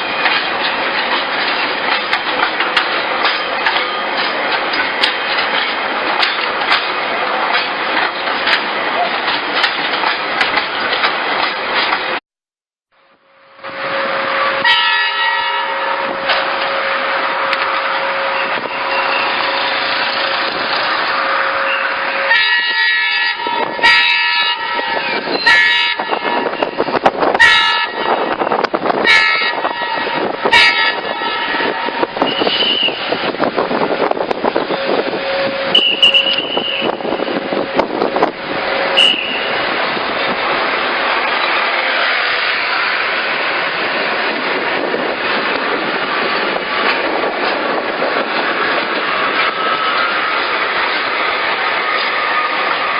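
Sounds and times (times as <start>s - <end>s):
train rumbling past: 0.0s - 12.2s, 13.1s - 52.9s
train horn blasts: 13.4s - 19.4s, 21.2s - 26.7s, 27.4s - 28.4s, 29.0s - 33.1s, 34.7s - 37.6s, 38.7s - 39.6s.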